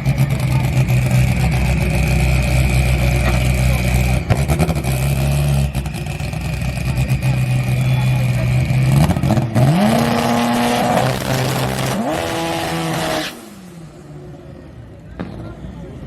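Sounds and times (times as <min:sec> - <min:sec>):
race car engines crackling: 0:00.0 - 0:16.0
engine revving high: 0:06.7 - 0:13.9.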